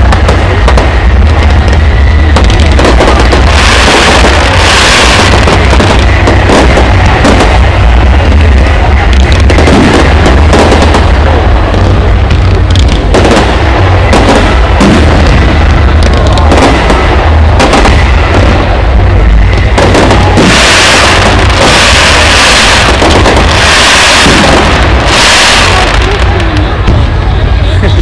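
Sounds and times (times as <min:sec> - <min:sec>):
fireworks bangs: 0:00.0 - 0:28.0
loud hissing: 0:00.0 - 0:28.0
low rumble: 0:00.0 - 0:28.0.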